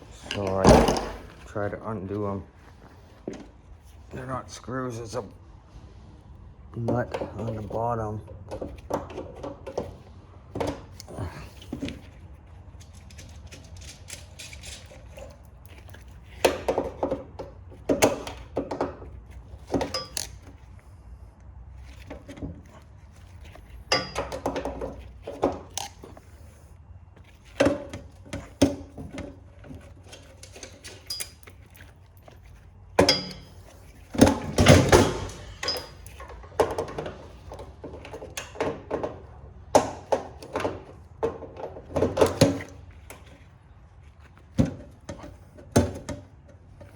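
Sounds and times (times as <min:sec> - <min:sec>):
metal tools clanking and rattling: 0:00.0 - 0:01.6, 0:12.8 - 0:20.6, 0:23.4 - 0:26.2, 0:27.6 - 0:43.2.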